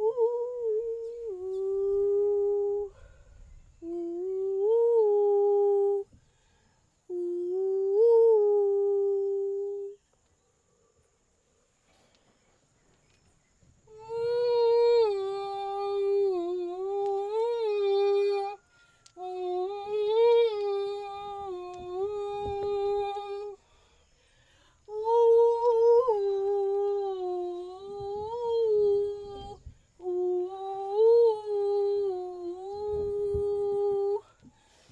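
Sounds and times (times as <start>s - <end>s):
woman singing wordless notes: 0.0s - 3.0s, 3.8s - 6.1s, 7.1s - 10.0s, 13.9s - 23.6s, 24.9s - 34.4s.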